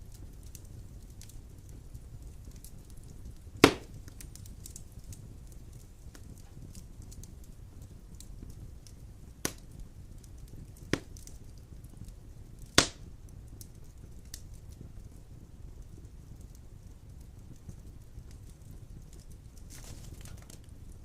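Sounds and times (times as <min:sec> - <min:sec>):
burning logs popping: 0:00.0 - 0:21.0
wood fire rumbling and crackling: 0:00.0 - 0:21.0.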